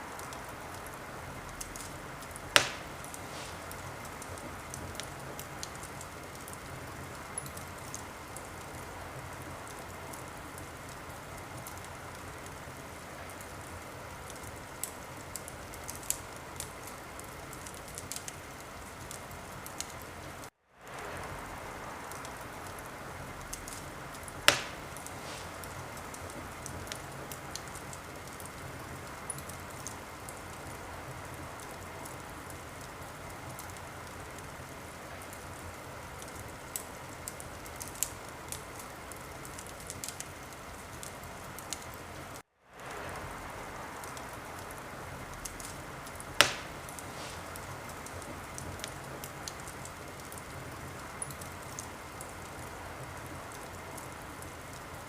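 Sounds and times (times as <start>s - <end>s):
wood fire crackling and hissing: 0.0s - 55.0s
loud pops from fire: 1.6s - 8.8s, 23.4s - 30.7s, 45.3s - 51.8s.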